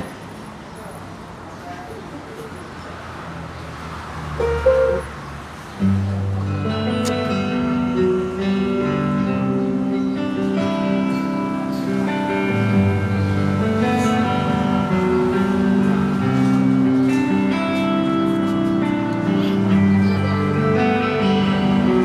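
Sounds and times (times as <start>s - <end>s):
music with guitar and bass: 4.4s - 5.0s, 5.8s - 22.0s.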